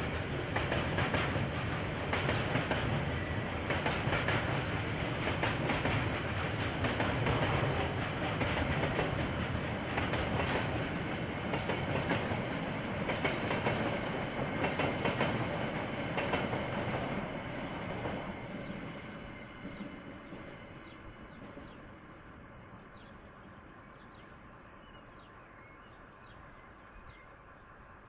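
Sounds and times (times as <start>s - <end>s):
train wheels clacking over joints: 0.0s - 21.8s
train running rumble: 0.0s - 28.0s
bird chirping: 18.5s - 22.0s, 22.6s - 28.0s.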